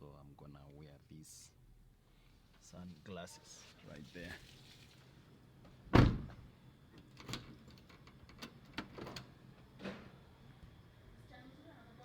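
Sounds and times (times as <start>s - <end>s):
car door shutting: 5.9s - 6.4s.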